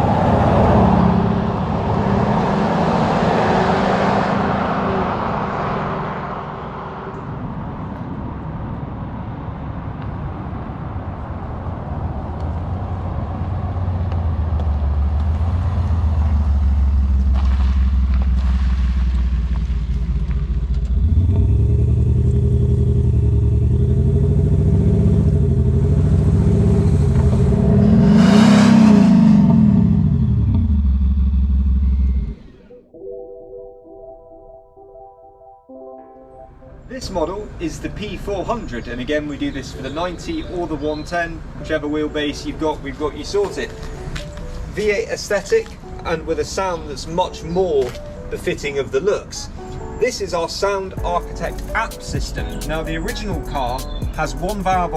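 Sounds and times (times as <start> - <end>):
diesel engine revving: 13.0 - 32.7.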